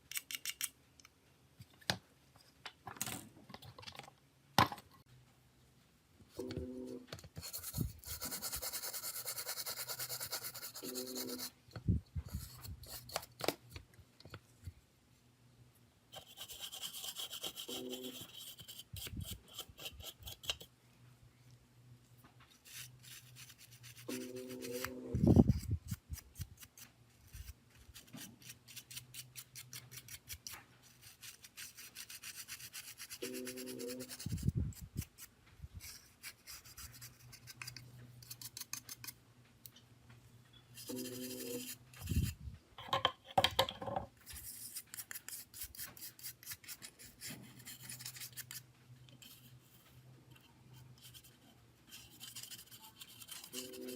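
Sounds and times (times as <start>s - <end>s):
scraping and rubbing on phone parts: 7.2s - 14.8s, 16.1s - 20.7s, 22.5s - 39.2s, 40.6s - 43.0s, 43.9s - 53.9s.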